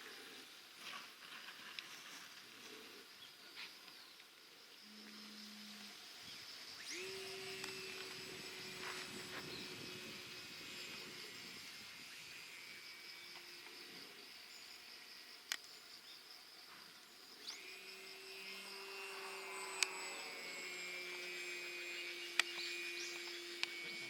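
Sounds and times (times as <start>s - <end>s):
model airplane motor whining: 4.9s - 14.6s, 17.4s - 24.0s.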